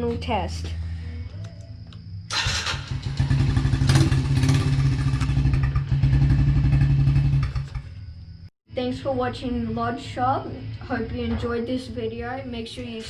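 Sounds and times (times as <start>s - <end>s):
small motorcycle engine running: 2.3s - 8.0s.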